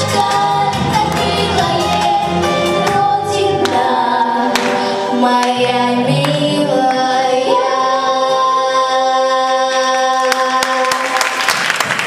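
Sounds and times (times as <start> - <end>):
vocal ensemble holding a chord: 0.0 - 11.5
audience applause: 10.6 - 12.0.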